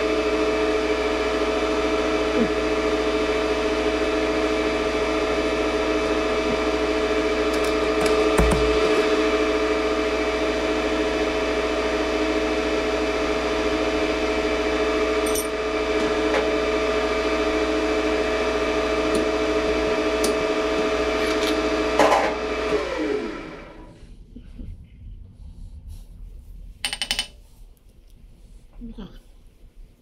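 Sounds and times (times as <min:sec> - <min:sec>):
lathe running with whine: 0:00.0 - 0:24.0
knock: 0:08.4 - 0:09.0.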